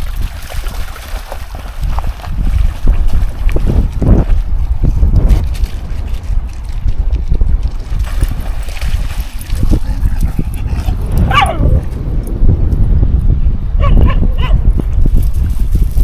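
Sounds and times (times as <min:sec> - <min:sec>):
wind buffeting microphone: 0:00.0 - 0:16.0
dog barking: 0:11.2 - 0:11.8, 0:13.8 - 0:14.6.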